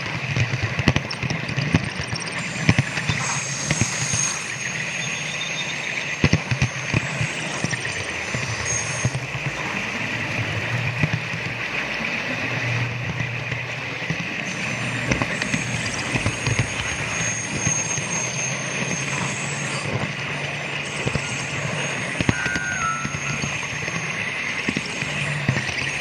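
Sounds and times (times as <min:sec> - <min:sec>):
model train motor whirring: 0:14.1 - 0:26.0.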